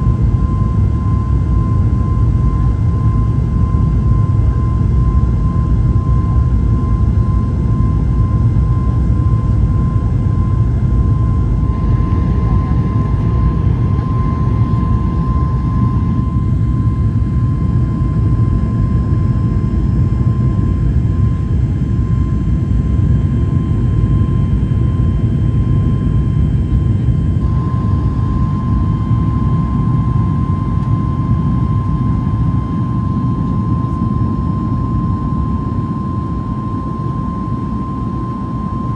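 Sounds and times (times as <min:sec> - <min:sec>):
jet engines running: 0:06.0 - 0:35.1.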